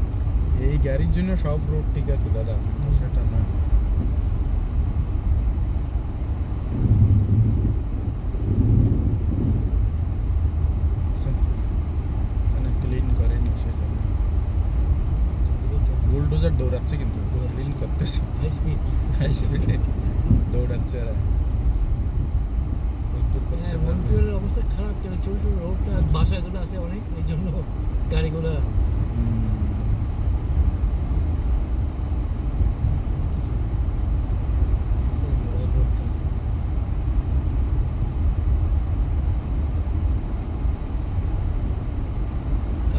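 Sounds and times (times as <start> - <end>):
engine and road rumble: 0.0 - 42.9.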